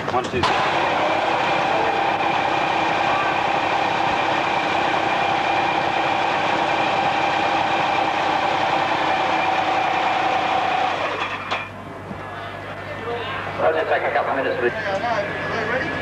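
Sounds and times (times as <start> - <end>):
loud engine running steadily: 0.0 - 16.0.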